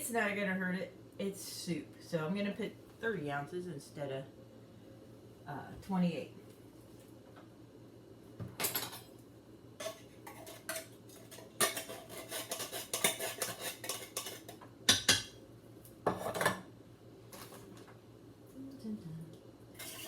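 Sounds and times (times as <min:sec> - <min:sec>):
metal utensil scraping tin cans: 0:09.9 - 0:14.5.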